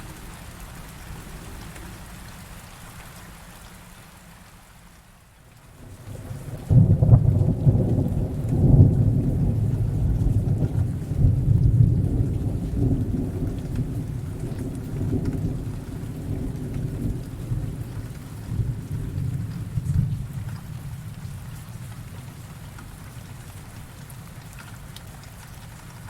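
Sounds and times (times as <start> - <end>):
heavy rain: 0.0 - 26.0
thunder rumbling: 5.9 - 21.5.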